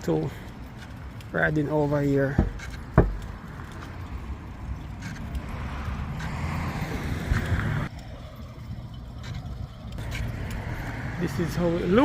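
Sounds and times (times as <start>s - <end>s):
road noise: 0.0s - 12.0s
car engine rumble: 2.3s - 11.5s.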